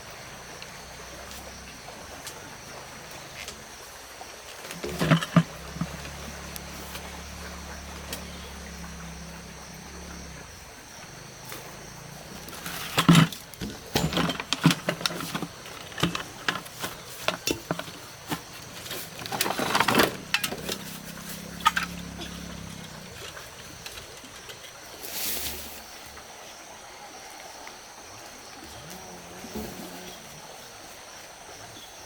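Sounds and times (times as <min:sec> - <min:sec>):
small motor humming: 0:04.8 - 0:24.2.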